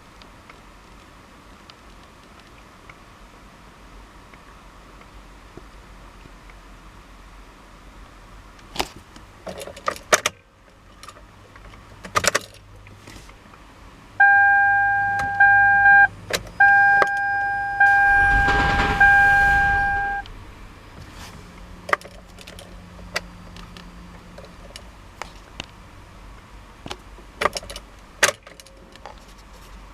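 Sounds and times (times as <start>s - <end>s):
electronic warning tone: 14.2s - 20.2s
brief rush of noise: 17.8s - 21.9s.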